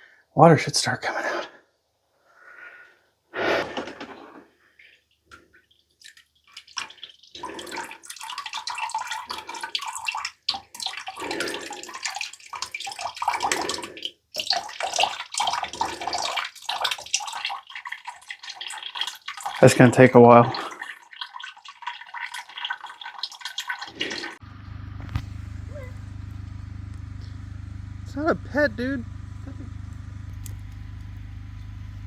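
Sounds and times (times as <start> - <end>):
water splashing from plumbing: 4.8 - 24.4.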